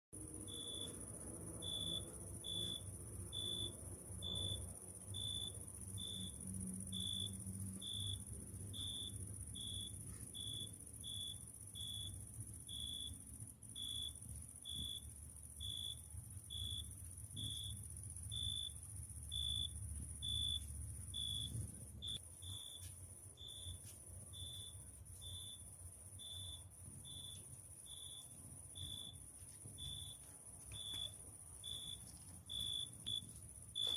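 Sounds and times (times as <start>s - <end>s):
cricket chirping: 0.2s - 33.9s
high thin insect trill: 0.4s - 33.9s.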